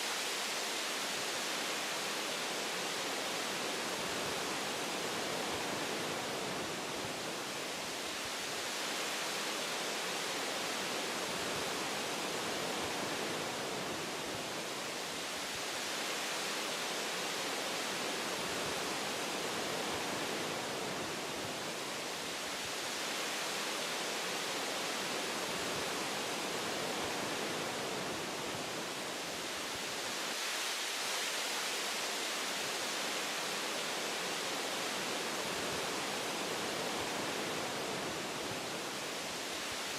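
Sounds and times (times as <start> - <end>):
wind through tree branches: 0.0 - 39.9.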